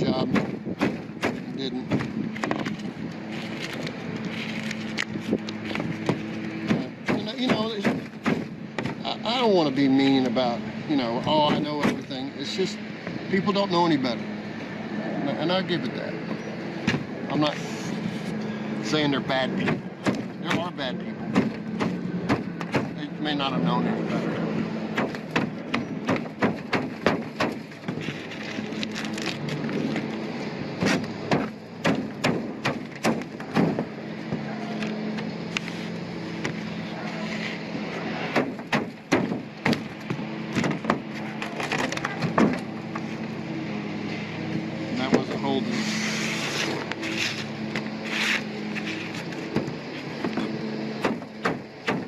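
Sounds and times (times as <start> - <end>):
steady low hum: 0.0 - 52.0
knocks and clanks on metal roof: 5.8 - 9.1, 24.9 - 28.2, 30.8 - 34.5, 38.3 - 42.7
short scraping hisses: 45.7 - 49.2.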